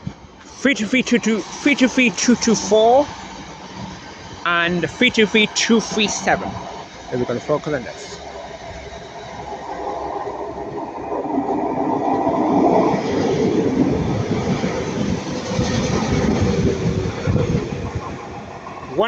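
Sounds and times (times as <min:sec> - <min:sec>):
electric train passing: 0:00.0 - 0:19.0.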